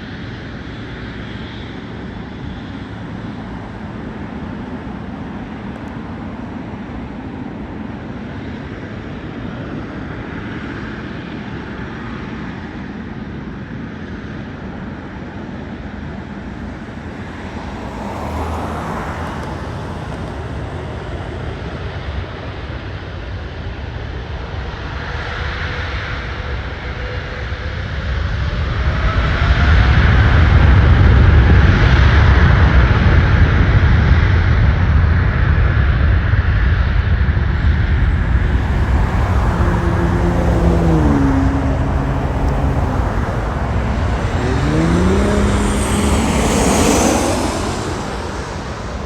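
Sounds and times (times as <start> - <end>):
airliner engines rushing: 0.1 - 24.7, 35.2 - 49.0
faint rising whine: 37.8 - 49.0.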